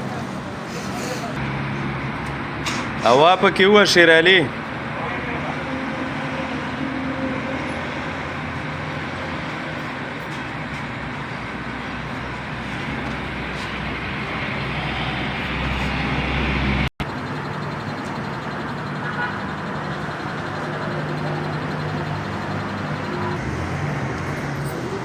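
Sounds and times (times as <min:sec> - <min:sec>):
vehicle engine running: 0:17.0 - 0:25.0.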